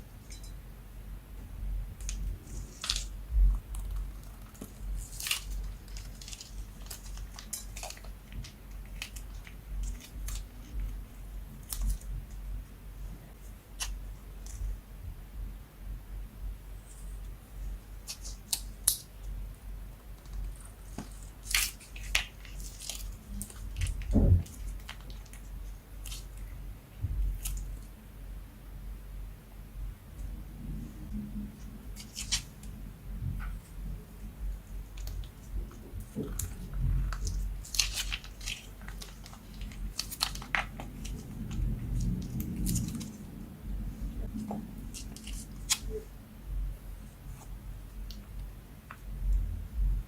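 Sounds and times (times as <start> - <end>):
slime squishing with crackles: 1.9 - 14.8, 16.8 - 28.0, 31.6 - 46.4.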